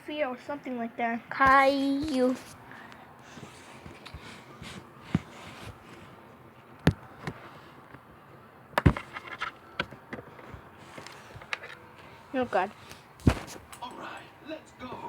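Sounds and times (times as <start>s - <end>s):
sharp knocks and clatters: 8.8s - 11.6s, 13.2s - 14.0s.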